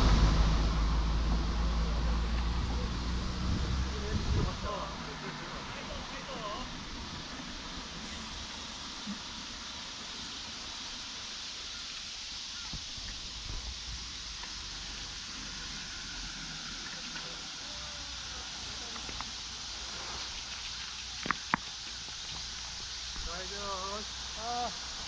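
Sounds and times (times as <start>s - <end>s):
outdoor noise hiss: 0.0s - 25.0s
sharp clicks: 20.2s - 22.7s.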